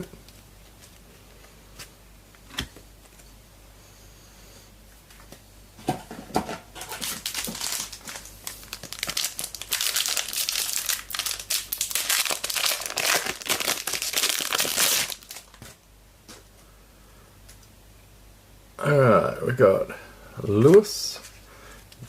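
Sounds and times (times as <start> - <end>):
foil wrapper crinkling: 6.8 - 15.8.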